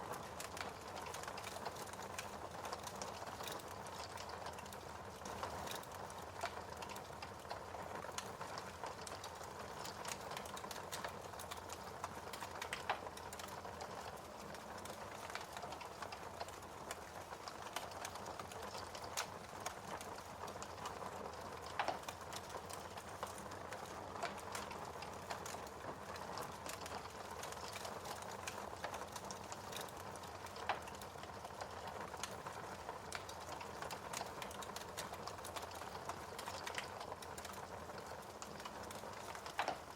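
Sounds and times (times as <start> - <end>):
wood fire crackling: 0.0 - 39.9
fire pops: 31.7 - 39.9.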